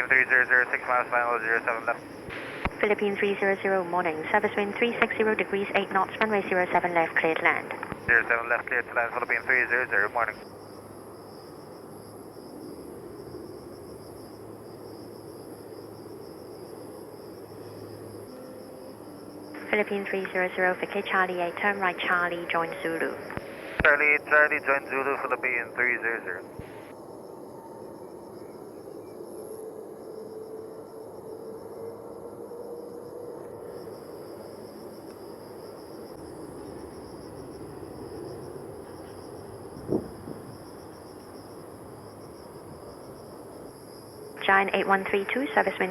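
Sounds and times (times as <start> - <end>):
faint low rumble: 0.0 - 11.6, 15.4 - 26.9
insects chirping: 0.0 - 45.9.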